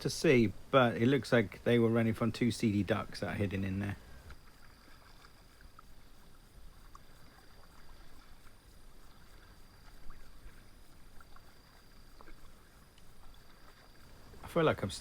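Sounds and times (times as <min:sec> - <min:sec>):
paddle splashes: 0:01.1 - 0:15.0
water dripping off paddle: 0:03.6 - 0:14.6.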